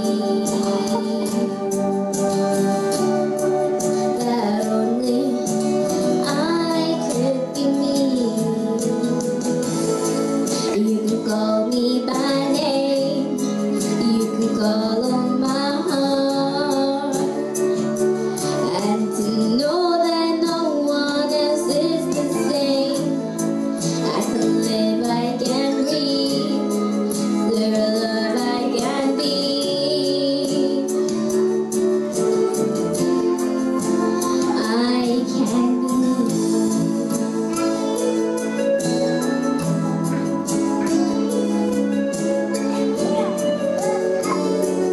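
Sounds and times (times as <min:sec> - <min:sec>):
woman and child singing: 0:00.0 - 0:01.6, 0:04.2 - 0:09.1, 0:10.7 - 0:17.4, 0:18.6 - 0:23.2, 0:24.0 - 0:26.8, 0:27.5 - 0:31.0, 0:34.2 - 0:36.8, 0:42.6 - 0:44.9
instrumental accompaniment: 0:00.0 - 0:44.9.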